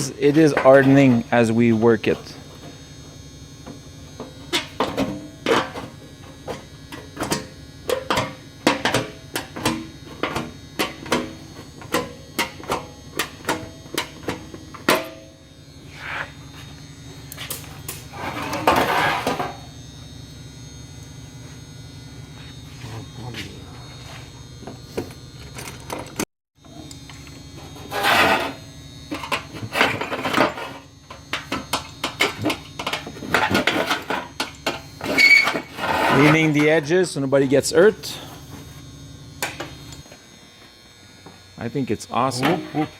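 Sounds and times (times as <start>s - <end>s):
steady low hum: 0.0s - 42.9s
scraping on sheet metal: 18.1s - 19.6s, 27.8s - 28.7s, 35.0s - 36.5s.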